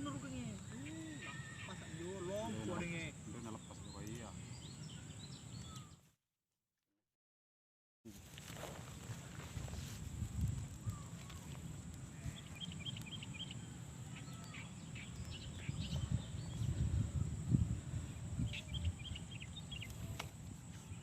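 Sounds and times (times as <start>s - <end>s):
bird chirping rapidly: 12.4s - 16.7s.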